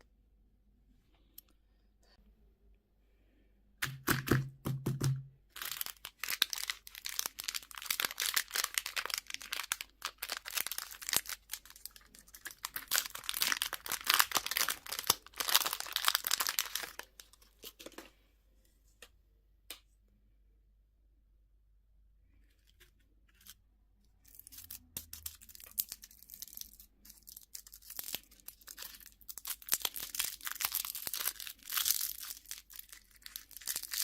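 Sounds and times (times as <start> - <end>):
candy wrapper crinkling: 5.5 - 18.0, 22.5 - 34.0.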